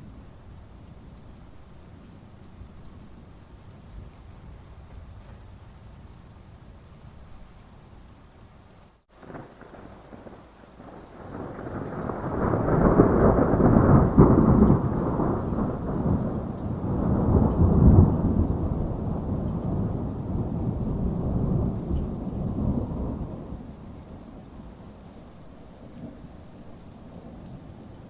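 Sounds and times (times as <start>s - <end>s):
steady rain: 0.0s - 28.0s
rolling thunder rumble: 9.2s - 28.0s.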